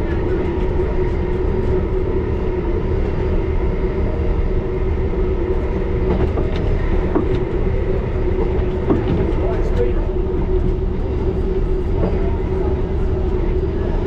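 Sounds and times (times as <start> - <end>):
underground train rumbling: 0.0 - 14.0.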